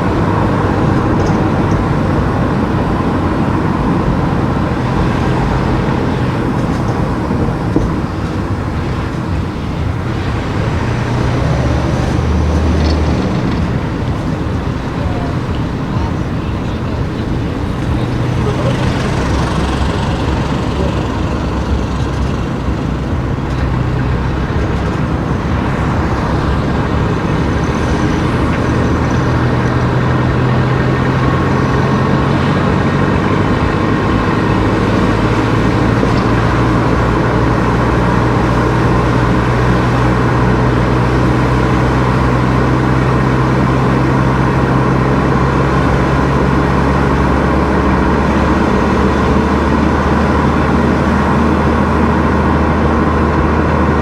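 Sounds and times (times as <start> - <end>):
car engine drone: 0.0 - 54.0
tyre and road noise: 0.0 - 54.0.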